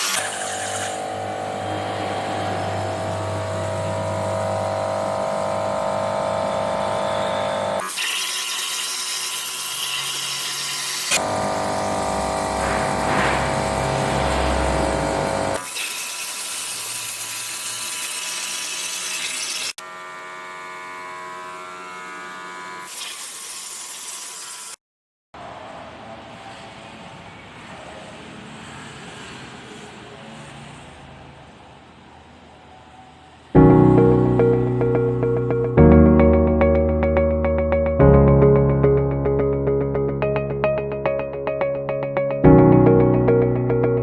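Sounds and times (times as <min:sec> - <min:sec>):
loud plasma cutter hissing: 0:00.0 - 0:04.0, 0:05.2 - 0:19.8, 0:22.8 - 0:24.8
motor whine: 0:00.0 - 0:07.9.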